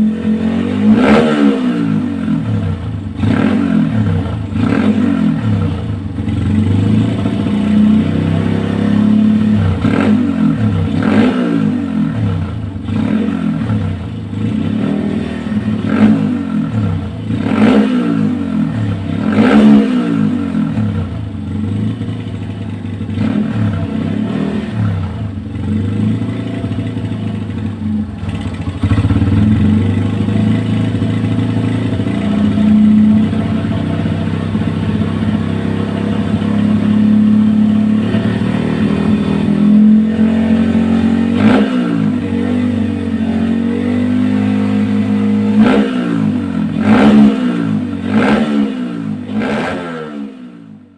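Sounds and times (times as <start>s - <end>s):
motorcycle idling and revving: 0.0s - 50.9s.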